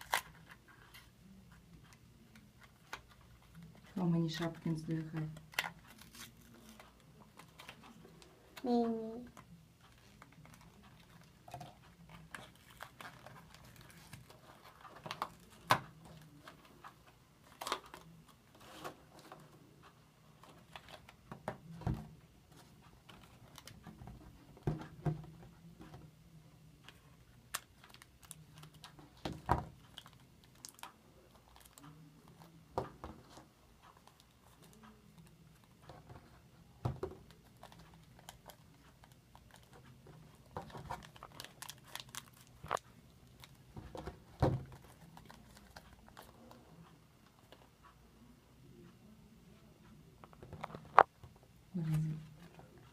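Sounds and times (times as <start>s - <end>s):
plastic packaging crinkling: 40.6s - 43.6s.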